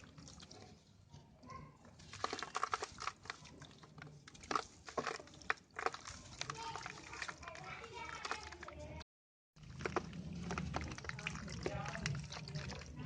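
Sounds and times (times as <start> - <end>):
cement pieces crunching and crackling: 2.0 - 9.0.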